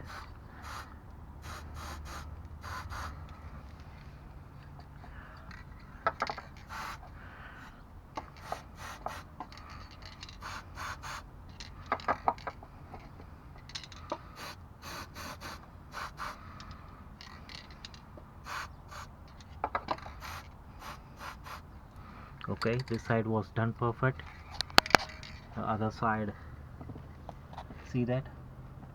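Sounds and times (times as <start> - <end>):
aerosol can spraying: 0.0 - 3.3, 6.6 - 7.0, 8.4 - 9.3, 10.4 - 11.2, 14.4 - 16.4, 18.4 - 19.1, 20.1 - 21.6.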